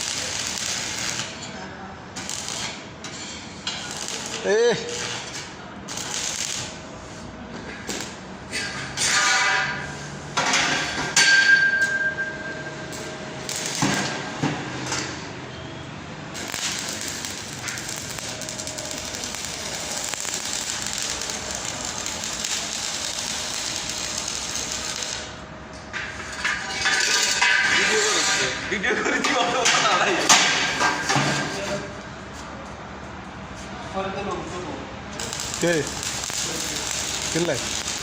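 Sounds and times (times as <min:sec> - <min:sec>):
electric arc welding hiss: 0:00.0 - 0:01.4, 0:02.2 - 0:02.8, 0:03.8 - 0:05.3, 0:05.9 - 0:06.8, 0:13.4 - 0:14.0, 0:16.3 - 0:25.4, 0:35.2 - 0:38.0
metal knocks and clangs: 0:25.9 - 0:28.6.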